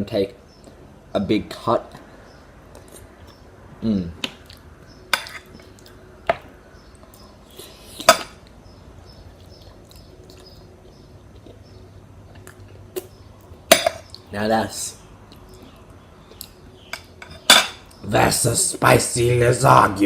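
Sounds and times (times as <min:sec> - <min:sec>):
cutlery scrape: 0:05.1 - 0:05.5
cutlery clinking on plate: 0:13.7 - 0:14.1, 0:16.9 - 0:17.9.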